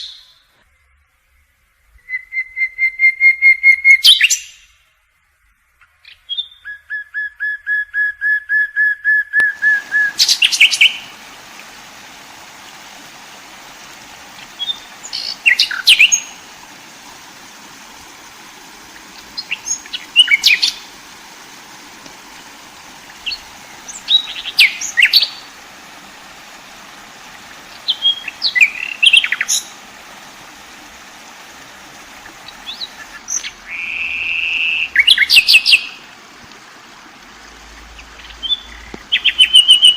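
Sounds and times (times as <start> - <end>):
songbird singing: 0.0 - 4.8, 5.8 - 36.2, 37.6 - 39.9
steady hiss: 9.5 - 39.9.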